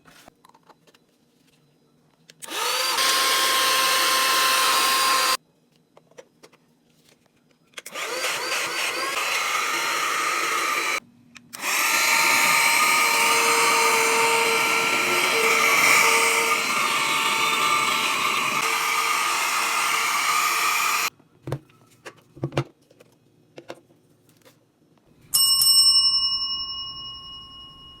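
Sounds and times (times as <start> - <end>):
mini vacuum motor whining: 2.4 - 5.4, 7.9 - 11.0, 11.6 - 21.1
bell-like ring: 25.3 - 28.0.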